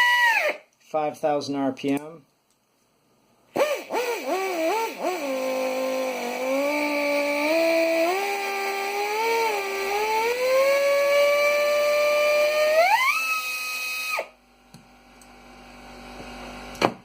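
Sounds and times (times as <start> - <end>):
pneumatic air tool whine: 0.0 - 0.6, 3.6 - 14.4.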